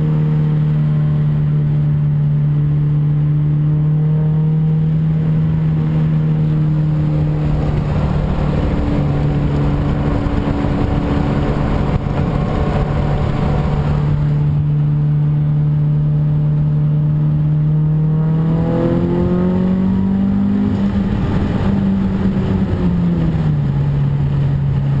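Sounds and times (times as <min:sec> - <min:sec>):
turbocharged car engine revving: 0:00.0 - 0:25.0.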